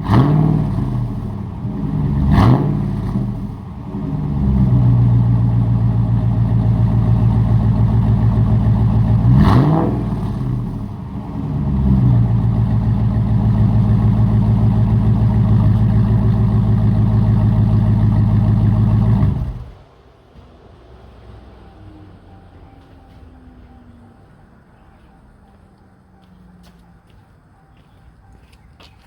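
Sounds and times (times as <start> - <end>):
unmuffled pickup engine revving: 0.0 - 19.8.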